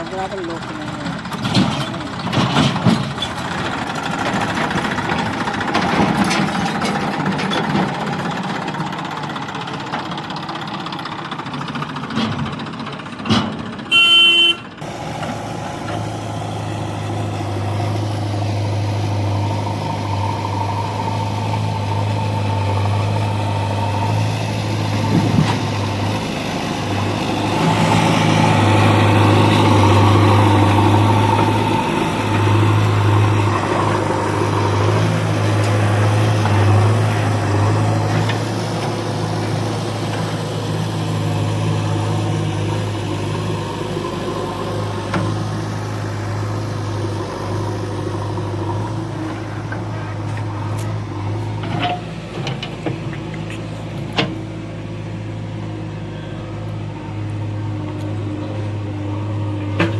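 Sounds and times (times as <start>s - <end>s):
heavy vehicle engine running: 0.0s - 59.9s
knocks and clatter: 0.6s - 9.0s.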